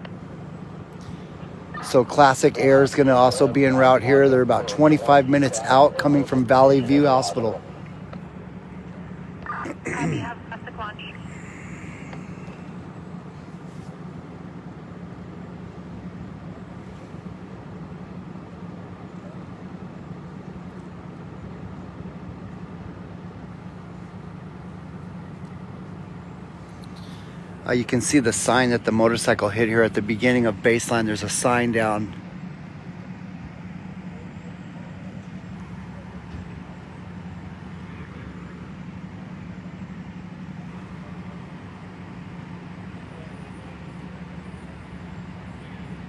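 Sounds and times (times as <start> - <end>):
vehicle engine idling: 0.0 - 46.0.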